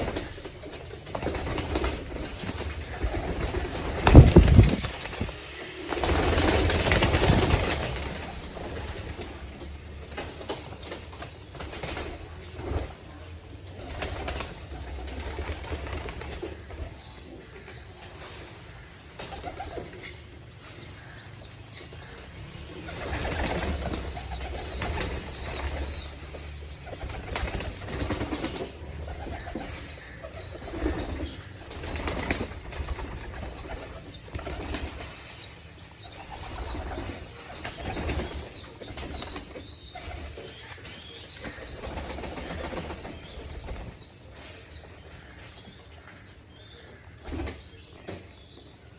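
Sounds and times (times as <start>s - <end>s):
wings flapping: 0.0s - 13.1s, 13.8s - 16.7s, 22.9s - 35.4s, 36.1s - 44.0s
pigeons cooing: 22.0s - 46.0s.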